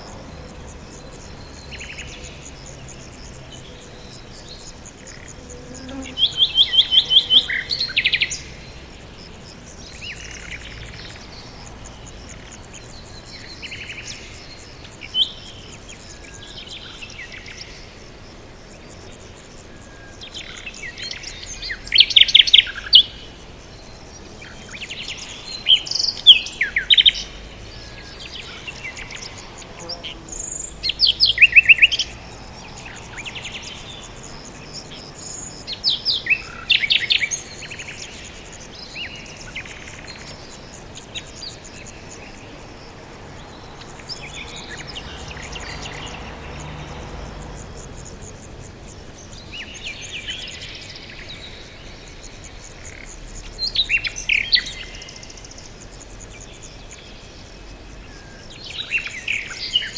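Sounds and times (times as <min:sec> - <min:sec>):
soft steady hiss: 0:00.0 - 0:59.9
songbirds rapid chirps: 0:00.0 - 0:59.9.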